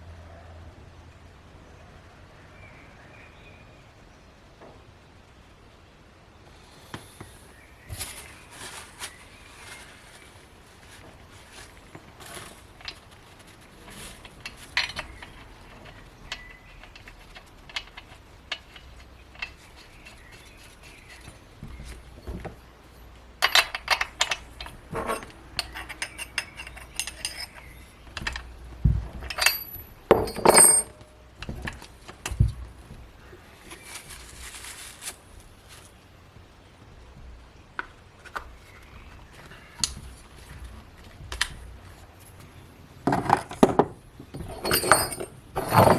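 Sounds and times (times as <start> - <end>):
metal tools clinking and clattering: 23.4 - 28.5, 29.2 - 31.7, 43.1 - 45.9.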